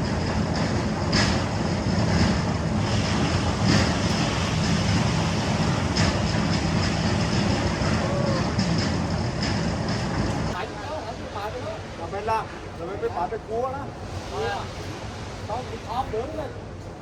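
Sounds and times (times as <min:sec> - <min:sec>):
mixer drum clattering: 0:00.0 - 0:10.6.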